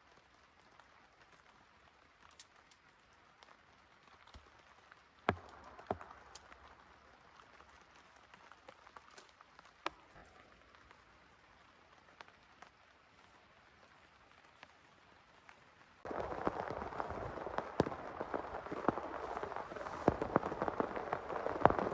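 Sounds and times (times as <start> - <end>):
raindrops tapping: 0.1 - 21.9
rain hissing: 4.7 - 14.1, 16.0 - 21.9.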